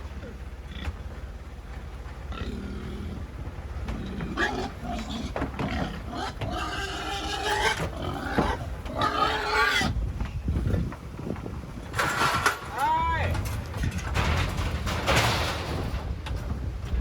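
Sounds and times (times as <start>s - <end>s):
steady low rumble: 0.0s - 9.0s, 9.8s - 17.0s
pigs squealing and screaming: 4.0s - 10.0s.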